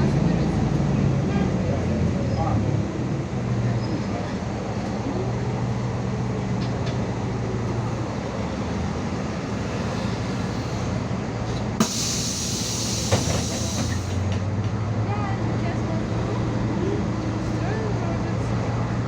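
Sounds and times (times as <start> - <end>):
bus engine drone: 0.0 - 19.0
road rumble: 0.0 - 19.0
compressed air hiss: 11.8 - 14.2.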